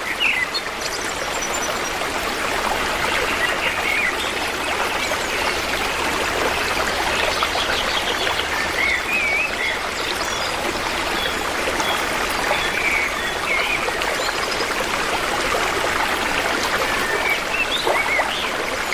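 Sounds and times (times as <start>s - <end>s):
stream water running: 0.0s - 18.9s.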